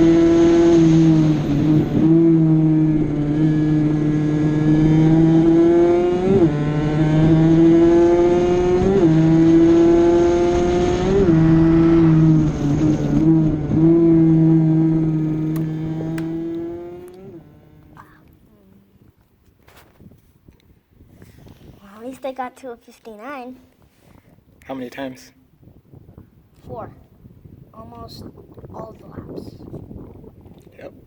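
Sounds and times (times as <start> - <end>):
two-stroke engine at high revs: 0.0 - 18.0.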